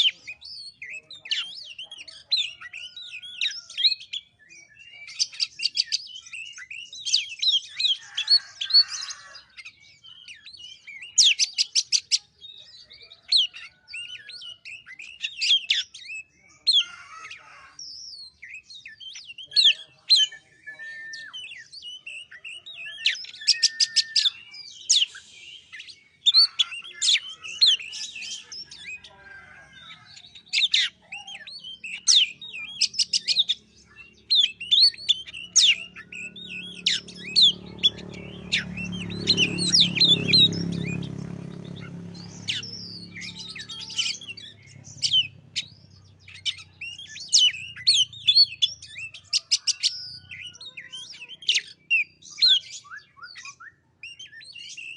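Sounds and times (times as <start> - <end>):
bird singing whistles and trills: 0.0 - 16.9, 17.8 - 29.2, 29.8 - 54.9.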